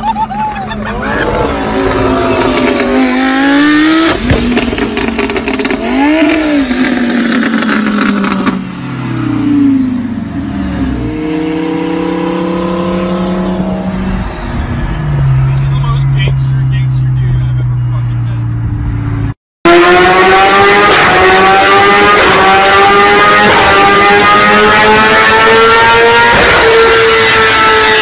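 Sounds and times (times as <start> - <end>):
engine accelerating: 0.7 - 28.0
sports car engine revving: 1.0 - 28.0.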